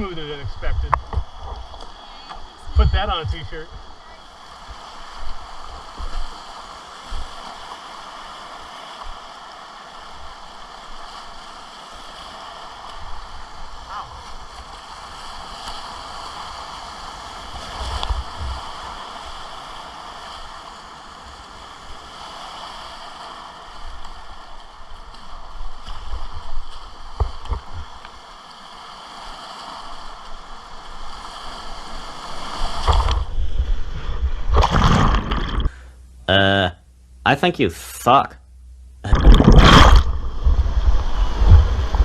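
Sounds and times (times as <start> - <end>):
low thumps: 38.6 - 42.0.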